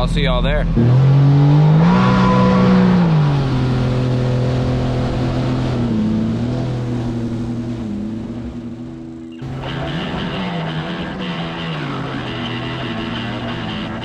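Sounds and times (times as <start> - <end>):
jet boat engine running: 0.0 - 14.0.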